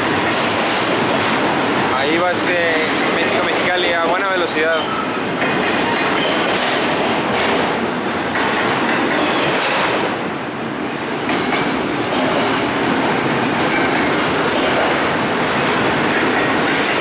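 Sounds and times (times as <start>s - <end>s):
freight train wheels clattering: 0.0s - 10.4s, 11.0s - 17.0s.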